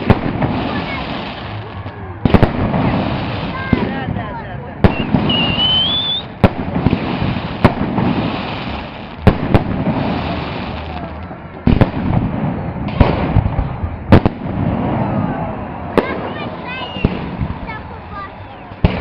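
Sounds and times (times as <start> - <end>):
crowd noise: 0.0 - 19.0
fireworks bangs: 0.0 - 19.0
short rising whistle: 5.3 - 6.3.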